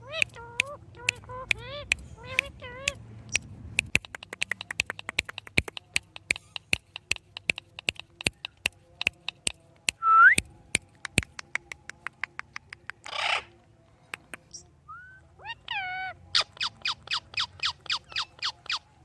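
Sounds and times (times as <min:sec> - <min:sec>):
parrot clicking: 0:00.0 - 0:10.0, 0:10.8 - 0:13.0.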